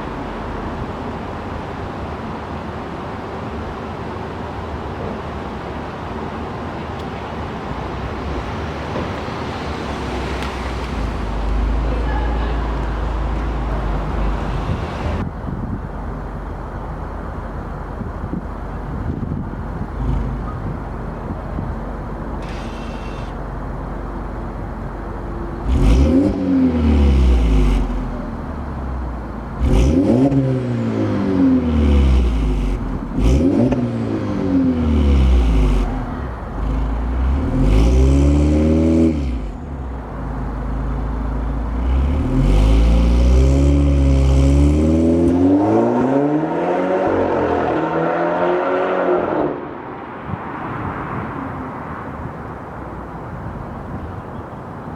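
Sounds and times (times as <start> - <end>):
car engine idling and revving: 0.0 - 54.9
sharp exhaust snaps: 19.6 - 23.7.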